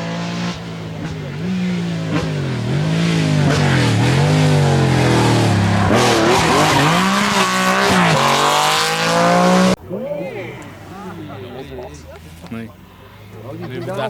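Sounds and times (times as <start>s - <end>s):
rally car engine revving: 0.0s - 9.8s.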